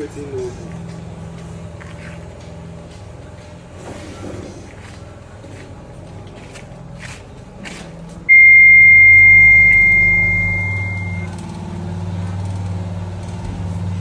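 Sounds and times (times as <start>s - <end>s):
high-pitched electronic beep: 8.3s - 11.3s
low steady hum: 8.3s - 11.3s.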